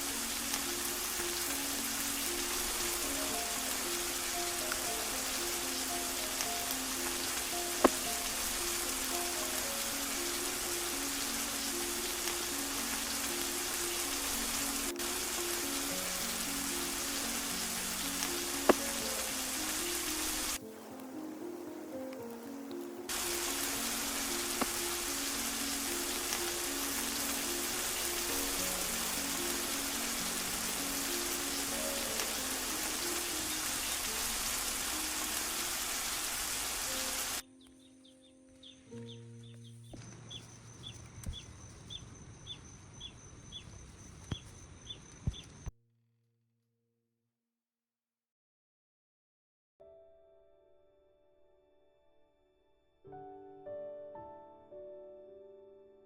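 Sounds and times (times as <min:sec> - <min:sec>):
steady rain hiss: 0:00.0 - 0:39.4
slow background music: 0:00.0 - 0:40.8, 0:49.9 - 0:56.0
soft background melody: 0:00.0 - 0:41.4, 0:49.8 - 0:56.0
faint chirps: 0:00.0 - 0:45.7.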